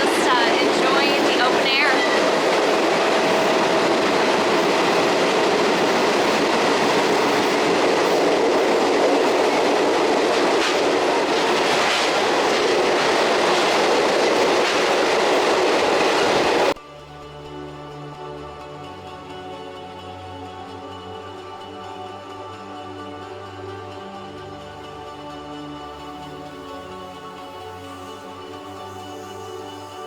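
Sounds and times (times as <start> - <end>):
music: 0.0 - 10.3, 16.8 - 30.0
train rumbling on rails: 0.0 - 16.8, 25.8 - 30.0.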